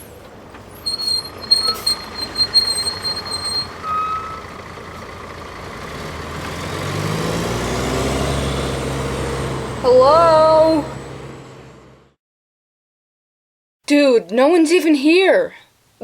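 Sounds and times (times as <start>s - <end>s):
car engine approaching: 0.0s - 12.2s.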